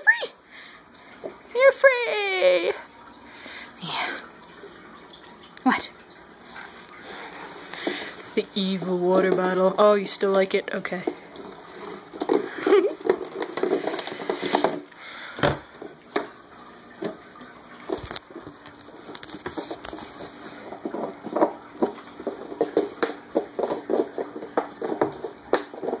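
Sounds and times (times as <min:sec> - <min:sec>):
plastic bottle crinkling and clattering: 0:06.8 - 0:26.0.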